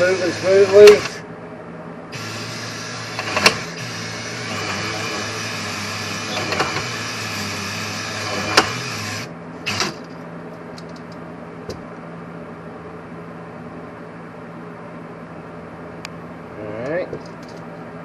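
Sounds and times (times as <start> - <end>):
electric drill spinning: 0.0 - 1.2, 2.1 - 10.1
faint steady hum: 0.0 - 18.0.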